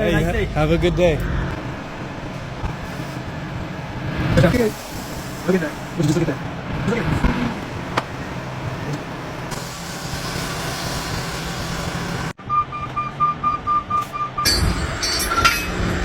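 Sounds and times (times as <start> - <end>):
heavy truck engine running: 0.0 - 16.0
mechanical noise: 0.0 - 16.0
short electronic beeps: 12.4 - 15.5.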